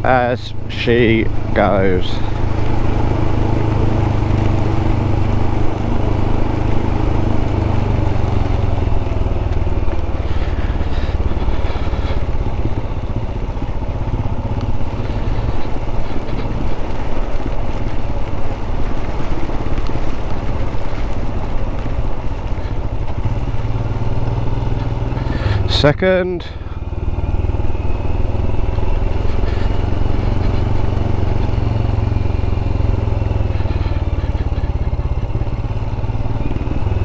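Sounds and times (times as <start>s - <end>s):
motorcycle engine humming: 0.0s - 37.0s
rushing wind and rain: 0.0s - 37.0s.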